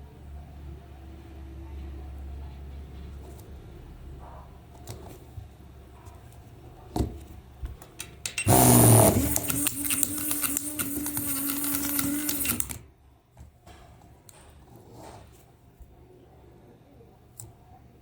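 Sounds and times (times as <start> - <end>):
clicks: 7.9 - 12.8
toy electric motor whirring: 8.4 - 12.8.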